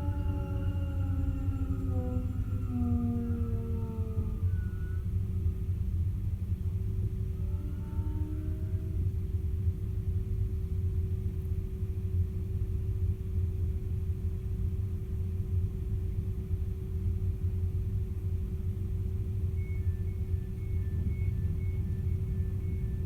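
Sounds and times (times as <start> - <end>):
train rumble: 0.0 - 11.8
steady hum: 0.0 - 23.0.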